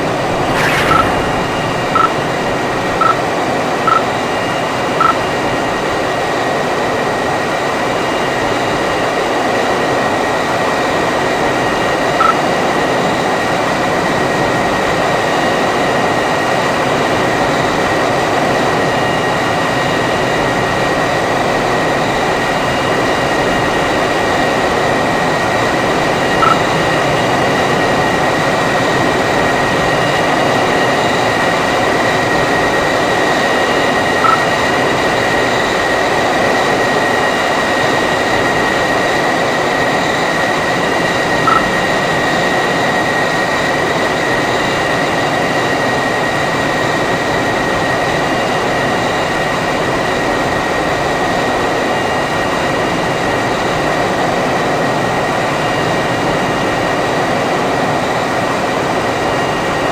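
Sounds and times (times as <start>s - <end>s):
jet engine whine and roar: 0.0s - 6.0s
short high beeps: 0.3s - 3.2s, 26.4s - 26.6s, 34.2s - 34.5s.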